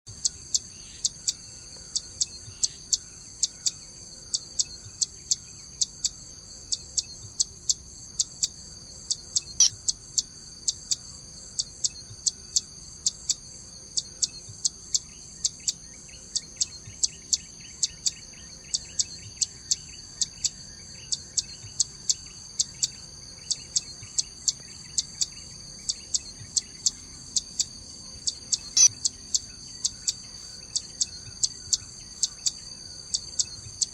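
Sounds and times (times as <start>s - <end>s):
insects droning: 0.1s - 33.9s.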